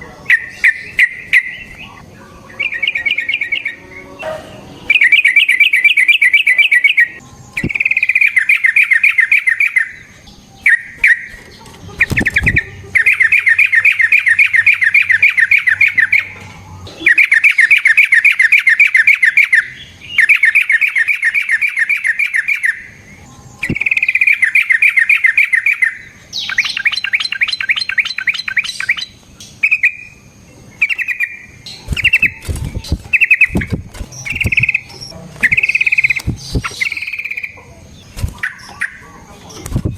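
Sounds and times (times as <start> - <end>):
bird singing rattling trills: 0.0 - 39.9
short clipped bird notes: 30.9 - 37.6.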